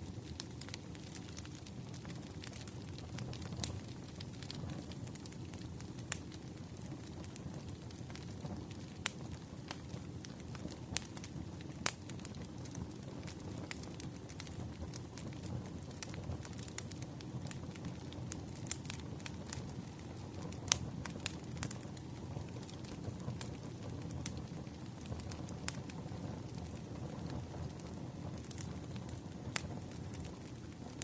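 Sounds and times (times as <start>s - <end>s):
low rumble of burning: 0.0s - 31.0s
wood fire crackling and popping: 0.0s - 31.0s.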